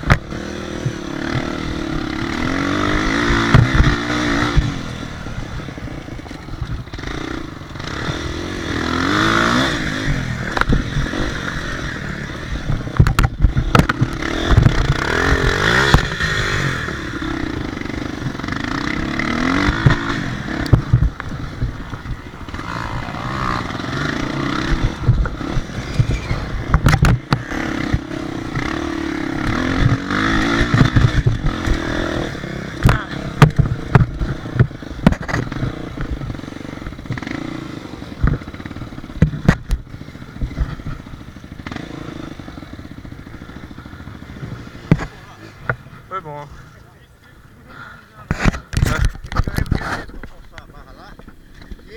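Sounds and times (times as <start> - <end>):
sharp knocks and clatter: 0.0 - 5.0, 12.6 - 17.6, 18.2 - 37.4, 38.2 - 41.9, 44.8 - 45.9
motocross engine revving: 0.0 - 51.9.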